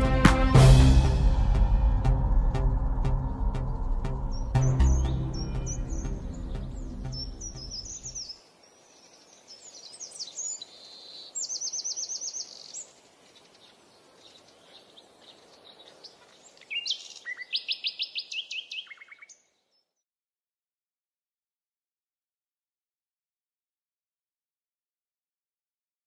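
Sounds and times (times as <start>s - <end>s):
music: 0.0s - 8.1s
songbirds chirping and singing: 3.1s - 19.9s
bird trill: 3.6s - 8.4s, 9.0s - 19.6s.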